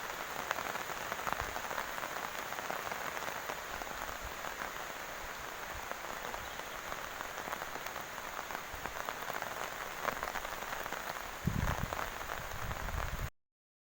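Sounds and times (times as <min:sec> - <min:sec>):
heavy rain pouring: 0:00.0 - 0:13.3
wind buffeting microphone: 0:11.4 - 0:13.3.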